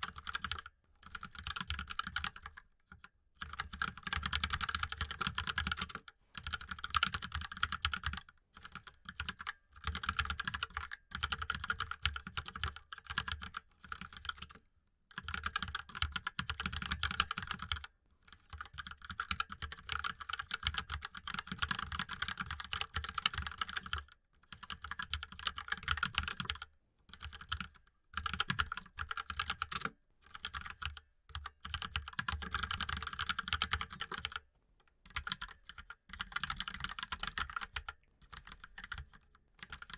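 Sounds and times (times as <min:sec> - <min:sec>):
typing on mechanical keyboard: 0:00.0 - 0:34.4, 0:35.0 - 0:39.9.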